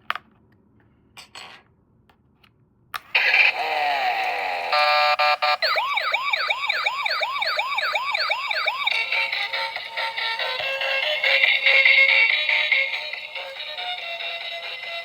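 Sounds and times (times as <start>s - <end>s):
toy sound effects with falling tones: 3.1s - 9.4s
toy police siren wailing: 3.2s - 11.8s.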